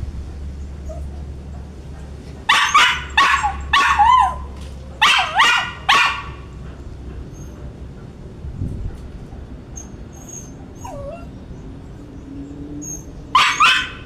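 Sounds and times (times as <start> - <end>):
dog barking and yipping: 0.8 - 6.6, 12.8 - 14.0.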